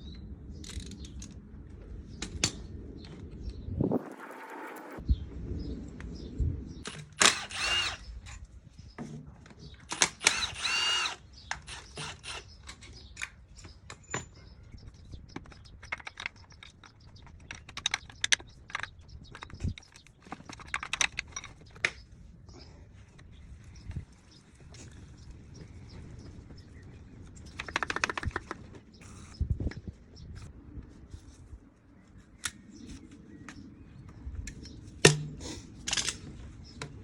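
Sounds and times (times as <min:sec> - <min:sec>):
power tool whirring: 0:06.9 - 0:08.1, 0:09.9 - 0:12.5.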